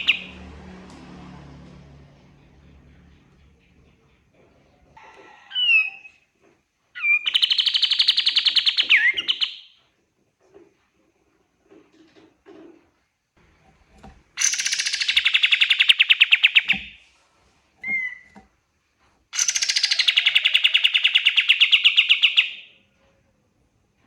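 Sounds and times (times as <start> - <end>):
songbird trilling: 0.0 - 0.3, 7.0 - 9.7, 14.4 - 17.0, 19.4 - 22.6.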